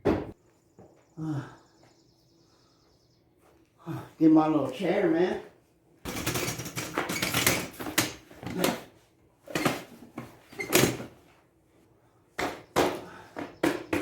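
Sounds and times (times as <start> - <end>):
hard objects clunking and rattling: 6.1 - 11.2.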